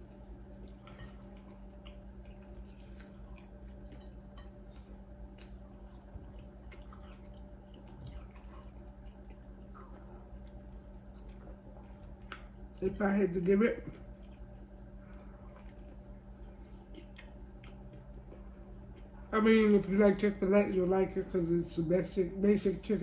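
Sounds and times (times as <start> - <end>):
person chewing food: 0.0 - 12.8, 13.8 - 19.3
faint low hum: 0.0 - 23.0.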